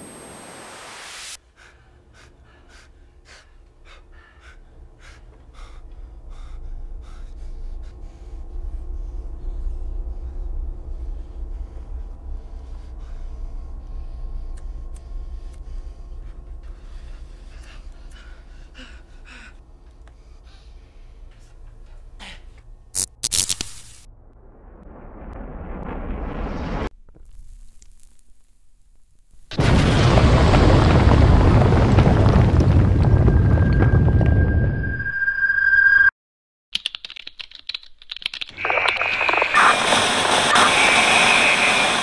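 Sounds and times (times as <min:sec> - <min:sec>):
heavy gasping breaths: 0:01.4 - 0:22.7
deep low rumble: 0:05.5 - 0:19.8, 0:24.0 - 0:26.9, 0:29.6 - 0:35.4.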